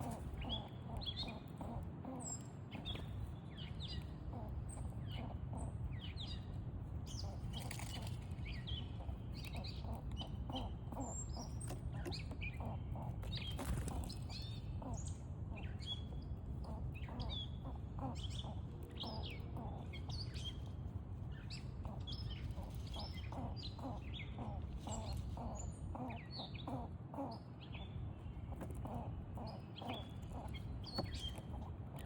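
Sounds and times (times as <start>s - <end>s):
low background rumble: 0.0s - 32.0s
small songbirds chirping: 0.0s - 32.0s.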